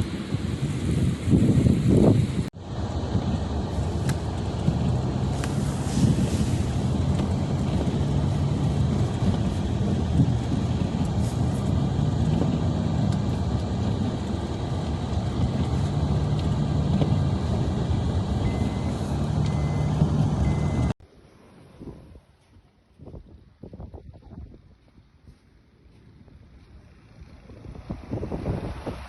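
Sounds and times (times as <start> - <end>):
large vehicle engine running: 0.0 - 29.0
short high beeps: 18.5 - 20.9.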